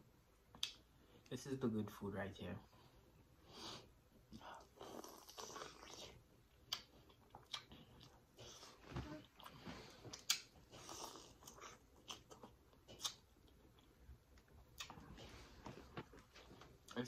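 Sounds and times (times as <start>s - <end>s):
mouth clicks and lip smacks: 0.5s - 0.9s, 4.6s - 8.3s, 9.2s - 15.2s
soft chewing: 3.7s - 17.0s.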